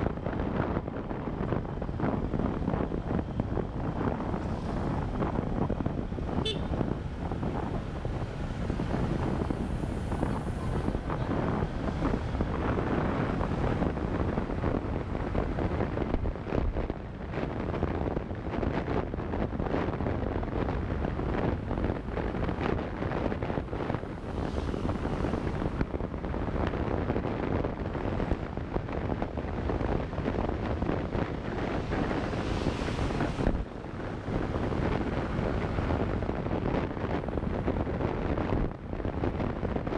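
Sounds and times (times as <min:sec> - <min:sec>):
road noise: 0:00.0 - 0:39.9
wind buffeting microphone: 0:00.0 - 0:39.9.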